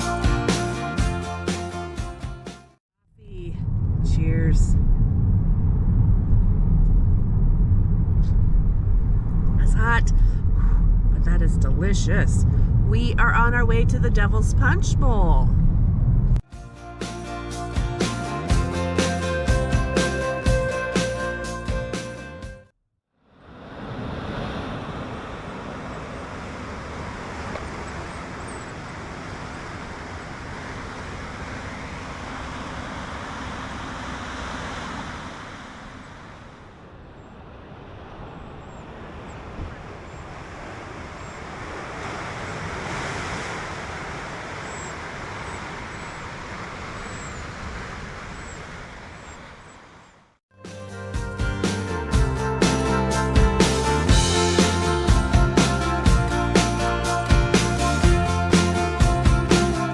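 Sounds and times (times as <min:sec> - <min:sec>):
tyre and wind road noise: 0:03.2 - 0:16.4, 0:23.5 - 0:50.4.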